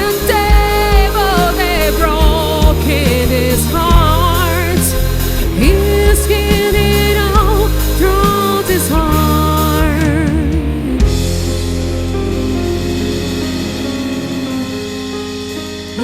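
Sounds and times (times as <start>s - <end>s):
live band playing pop ballad: 0.0s - 16.0s.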